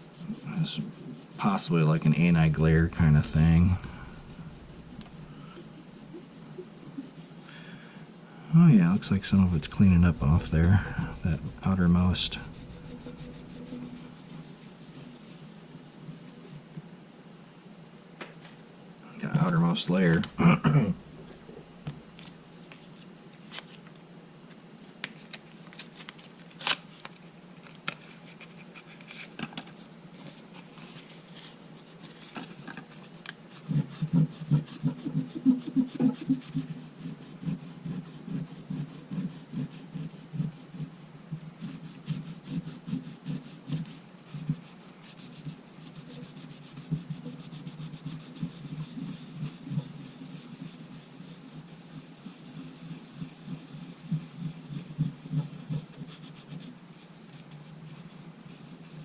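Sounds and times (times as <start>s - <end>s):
rubbing on glass: 0.0s - 7.5s, 9.0s - 16.6s, 33.0s - 59.0s.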